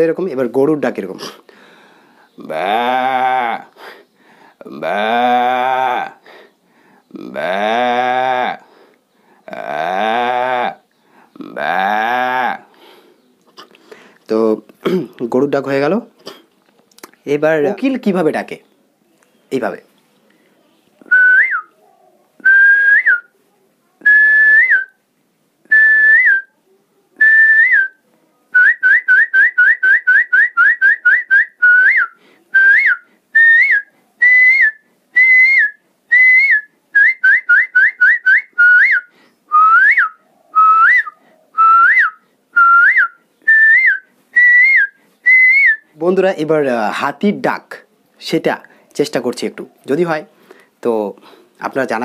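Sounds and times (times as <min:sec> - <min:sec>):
man whistling bird call: 0:21.1 - 0:21.7, 0:22.4 - 0:23.3, 0:24.1 - 0:24.9, 0:25.7 - 0:26.5, 0:28.6 - 0:45.9.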